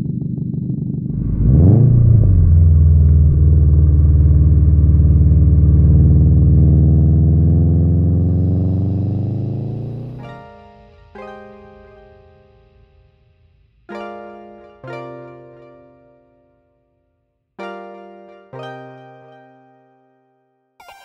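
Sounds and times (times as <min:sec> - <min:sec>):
car engine revving: 0:00.8 - 0:10.6.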